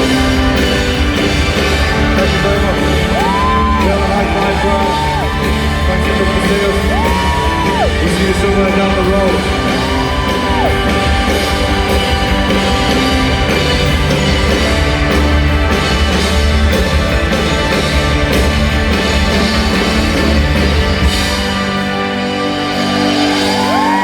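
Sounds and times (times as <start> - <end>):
rock band playing live: 0.0 - 24.0.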